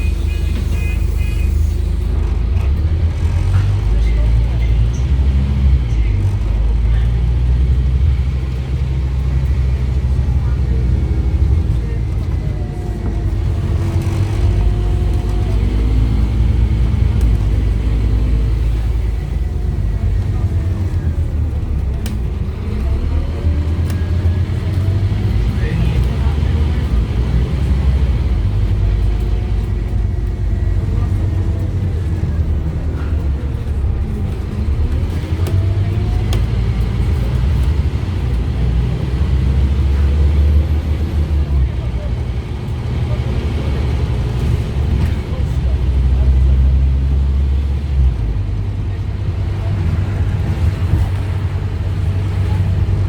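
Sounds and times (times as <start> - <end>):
bus engine rumble: 0.0 - 53.0.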